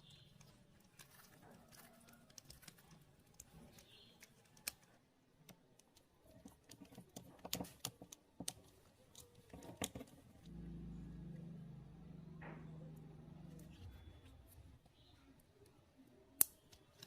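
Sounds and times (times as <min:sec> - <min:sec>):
small parts clicking and tapping: 0:00.0 - 0:10.5.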